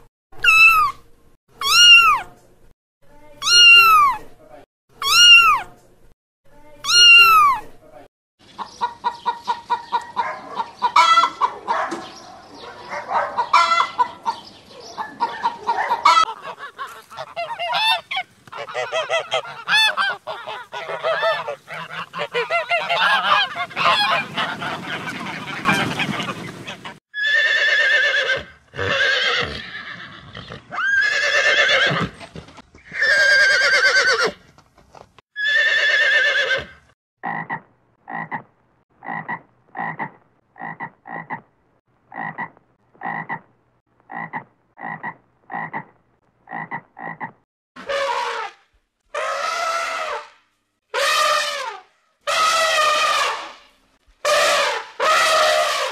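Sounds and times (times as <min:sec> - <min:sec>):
chickens clucking: 0:08.4 - 0:27.0
ducks quacking: 0:08.6 - 0:27.0, 0:42.1 - 0:43.4
frog croaks: 0:37.2 - 0:41.5, 0:42.1 - 0:43.5, 0:44.1 - 0:45.9, 0:46.5 - 0:47.4
loud long honks: 0:54.2 - 0:55.9.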